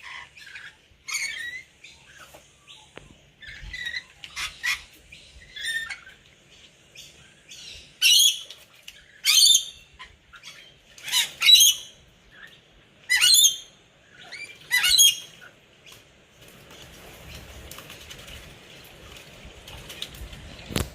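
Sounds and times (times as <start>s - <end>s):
parrots screeching: 0.0s - 2.2s, 3.4s - 6.2s, 9.2s - 12.5s, 13.1s - 15.5s
wings flapping in water: 8.3s - 9.7s, 14.4s - 20.9s.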